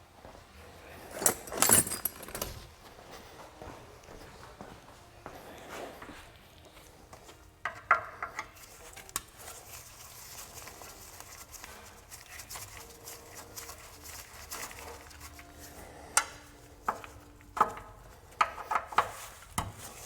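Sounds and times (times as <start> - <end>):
metal parts scraping: 1.1 - 2.6
metal tools clanking: 1.1 - 2.6.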